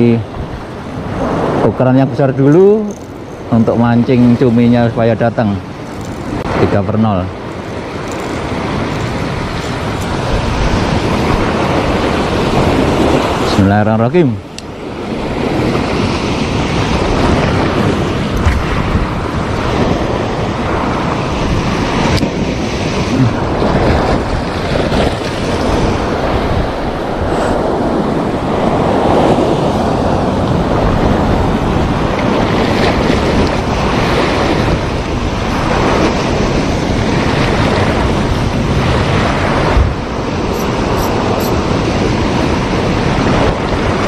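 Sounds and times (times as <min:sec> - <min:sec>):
sea waves washing ashore: 0:00.0 - 0:44.0
wind buffeting microphone: 0:00.0 - 0:44.0.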